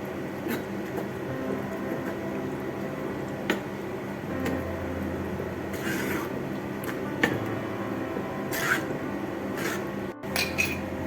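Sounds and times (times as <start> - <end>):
steady low hum: 0.0 - 11.0
spoon clink: 10.3 - 10.9.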